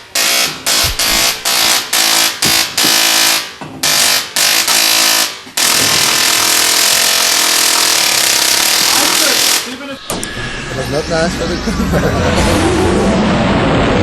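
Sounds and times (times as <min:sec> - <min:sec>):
tesla coil arcing buzz: 0:00.0 - 0:14.0.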